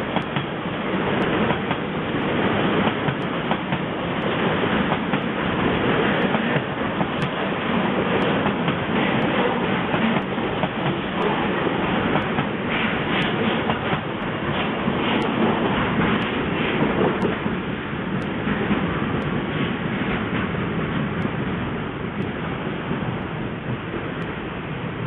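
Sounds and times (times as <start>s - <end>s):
train wagons rumbling past: 0.0s - 25.0s
sharp clicks: 6.2s - 7.4s, 13.2s - 14.4s.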